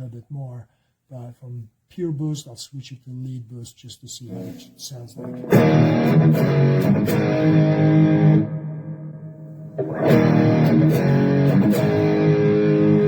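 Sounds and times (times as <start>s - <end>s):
electric guitar chords strummed: 4.3s - 13.0s.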